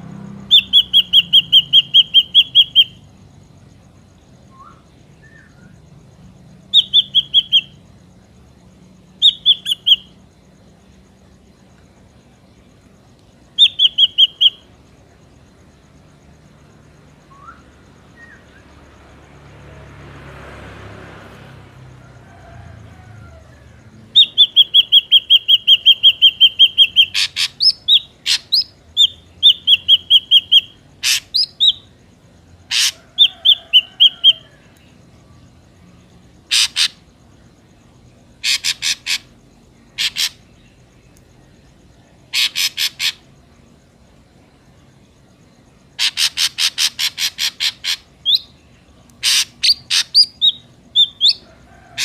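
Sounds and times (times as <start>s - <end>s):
bird whistling and chattering: 0.5s - 3.0s, 6.8s - 7.7s, 9.2s - 10.1s, 13.6s - 14.6s, 24.2s - 31.8s, 36.5s - 37.0s, 38.4s - 39.3s, 40.0s - 40.4s, 42.3s - 43.2s, 46.0s - 48.5s, 49.2s - 51.4s.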